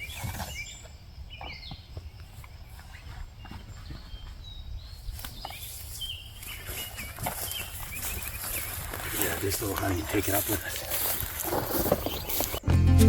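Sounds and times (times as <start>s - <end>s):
songbirds chirping: 0.0s - 13.0s
footsteps: 5.1s - 13.0s.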